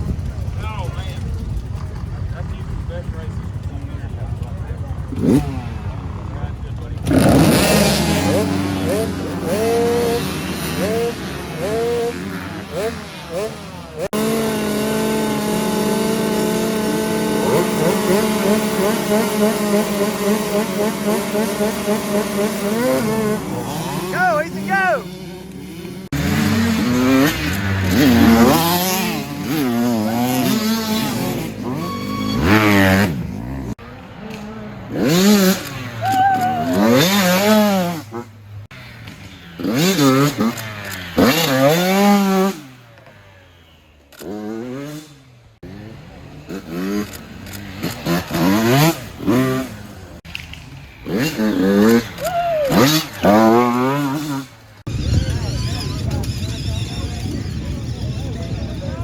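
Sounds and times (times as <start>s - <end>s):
dirt bike engines revving: 0.0s - 59.0s.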